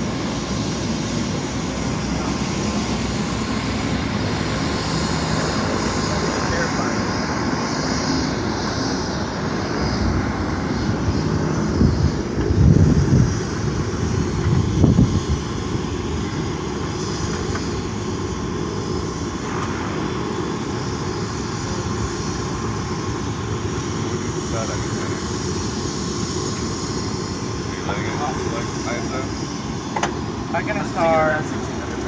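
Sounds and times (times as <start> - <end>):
helicopter engine and rotor: 0.0 - 32.0
low wind buffeting: 0.0 - 32.0.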